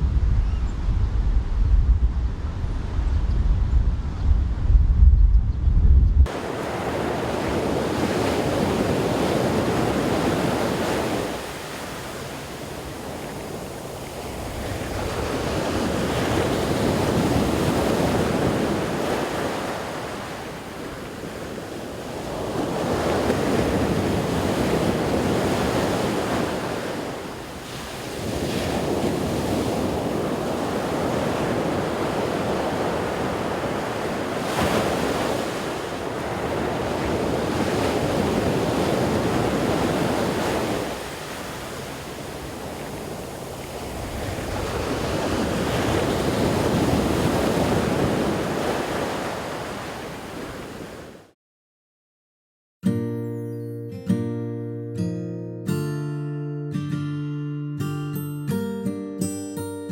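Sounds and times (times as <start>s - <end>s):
wind buffeting microphone: 0.0s - 51.1s
ocean surf breaking: 6.2s - 51.3s.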